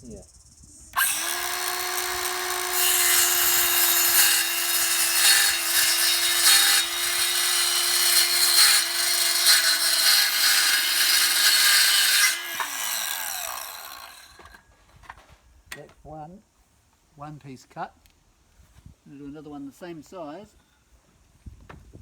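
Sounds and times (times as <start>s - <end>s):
saw blade spinning down: 1.0s - 6.9s, 7.8s - 14.6s
circular saw cutting wood: 1.0s - 14.6s.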